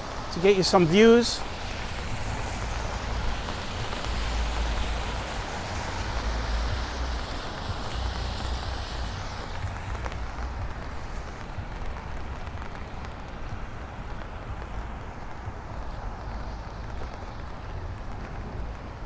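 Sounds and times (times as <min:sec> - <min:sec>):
rain: 0:00.0 - 0:19.0
traffic on wet streets: 0:00.0 - 0:19.0
wind gusting on microphone: 0:00.0 - 0:19.0.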